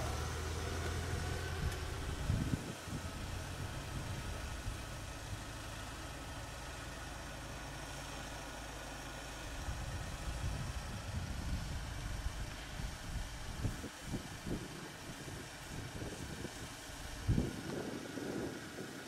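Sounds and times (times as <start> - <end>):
uneven low rumbling: 0.0 - 5.4
vehicle engine idling: 0.0 - 19.0.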